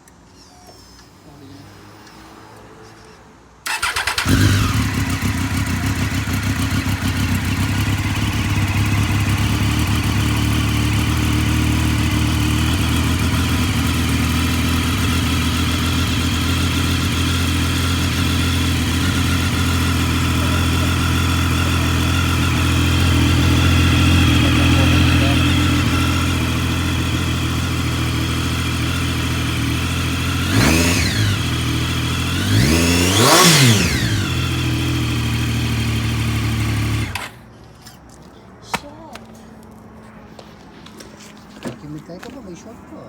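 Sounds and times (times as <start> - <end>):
motorcycle engine idling: 3.6 - 37.4
motorcycle starter cranking: 3.6 - 37.4.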